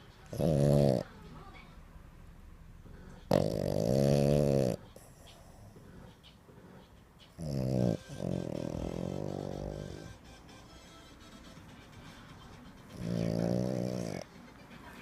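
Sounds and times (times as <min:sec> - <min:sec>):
dog groaning: 0:00.2 - 0:01.2, 0:03.0 - 0:10.2, 0:12.9 - 0:14.3.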